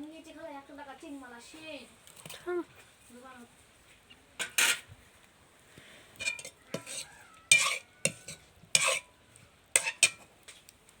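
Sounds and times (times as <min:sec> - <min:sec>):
utensil scraping metal pan: 0:04.4 - 0:04.9, 0:06.2 - 0:09.1, 0:09.8 - 0:10.3.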